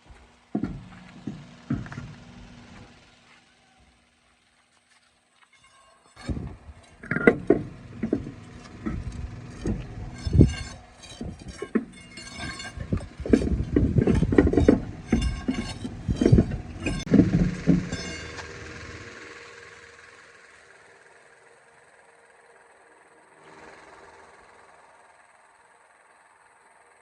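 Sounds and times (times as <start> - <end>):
knocks and metallic clanks: 0.0 - 3.4, 5.4 - 19.6.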